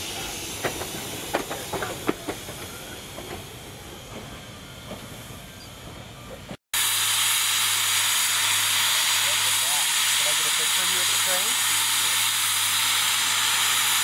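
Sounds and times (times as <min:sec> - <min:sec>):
steam locomotive hissing: 0:00.0 - 0:14.0
train wheels clicking on rail joints: 0:00.1 - 0:06.6.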